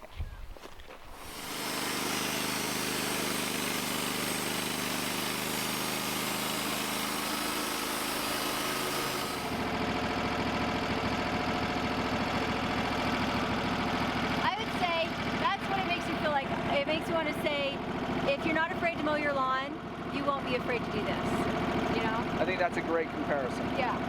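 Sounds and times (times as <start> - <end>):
saw blade cutting wood hiss: 1.1 - 9.6
sawmill engine running: 1.1 - 24.0.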